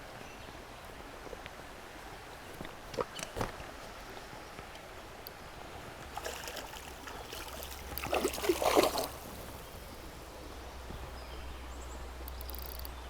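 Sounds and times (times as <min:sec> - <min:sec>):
shallow river water running: 0:00.0 - 0:13.0
water splash and slosh: 0:06.1 - 0:10.3.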